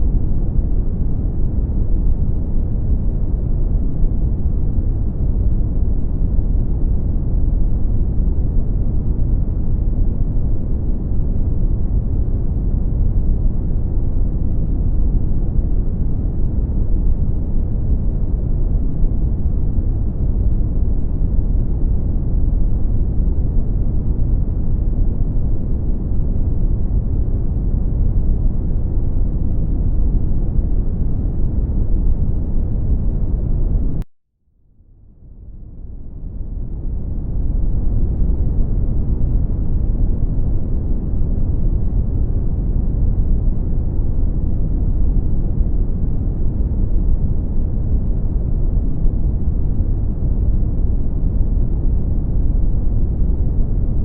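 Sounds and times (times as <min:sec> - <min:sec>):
brown noise: 0:00.0 - 0:34.0.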